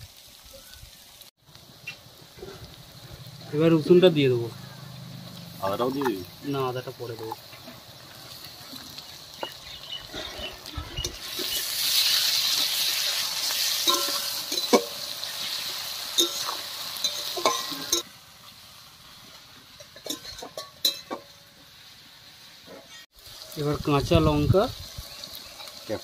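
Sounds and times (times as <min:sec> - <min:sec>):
garlic and onions sizzling in oil: 0:00.0 - 0:26.0
metal spatula clinking and scraping: 0:07.2 - 0:18.0, 0:19.7 - 0:21.4.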